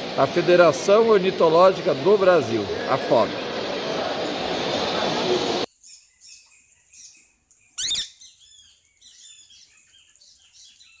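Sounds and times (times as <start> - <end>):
loud steady din: 0.0 - 5.7
birds chirping softly: 5.7 - 11.0.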